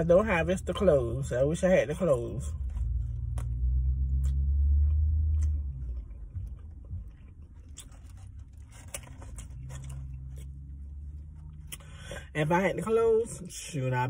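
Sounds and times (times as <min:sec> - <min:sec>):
low hum: 0:00.0 - 0:12.4
person chewing food: 0:02.5 - 0:12.1.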